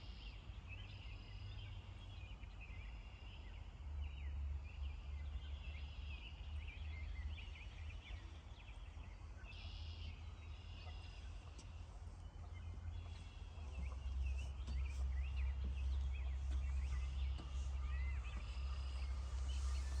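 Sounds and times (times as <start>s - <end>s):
steady low rumble: 0.0s - 20.0s
bird chirps and twitters: 4.1s - 20.0s.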